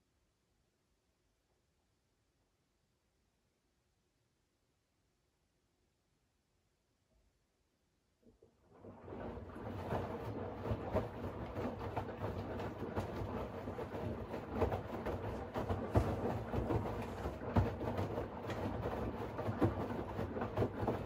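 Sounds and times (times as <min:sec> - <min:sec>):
soft knocks of tumbling laundry: 0:08.4 - 0:21.0
washing machine drum rumbling: 0:08.9 - 0:21.0.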